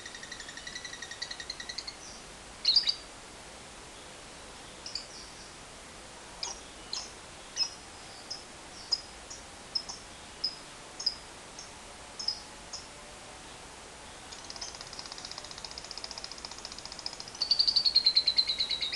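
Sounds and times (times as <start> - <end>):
lovebird rattling trill: 0.0 - 2.0, 14.3 - 18.9.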